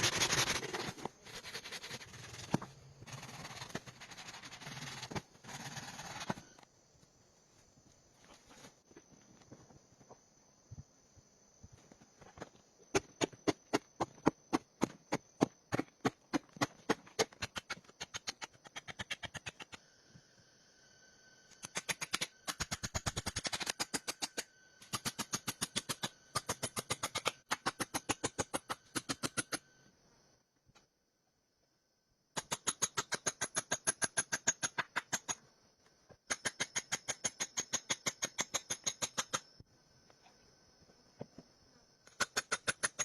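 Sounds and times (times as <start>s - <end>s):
fast rasping strokes: 0.0s - 6.4s.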